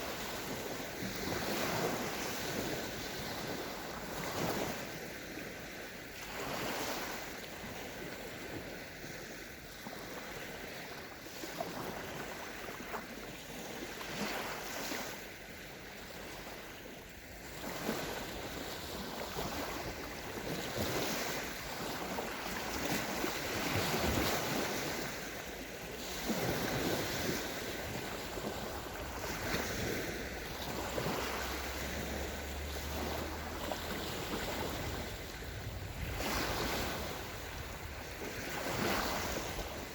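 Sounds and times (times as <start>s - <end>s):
small waves on sandy shore: 0.0s - 39.9s
wind buffeting microphone: 26.1s - 39.9s.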